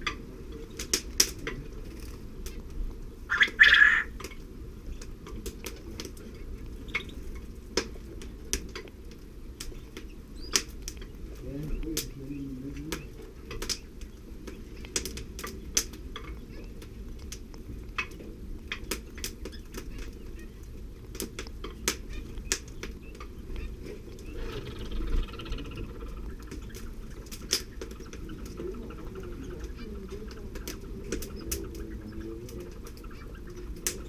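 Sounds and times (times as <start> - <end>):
birds clicking and tapping: 0.0 - 34.0
low steady rumble: 0.0 - 34.0
faint bird chittering: 3.3 - 7.5, 9.5 - 16.9, 18.8 - 34.0.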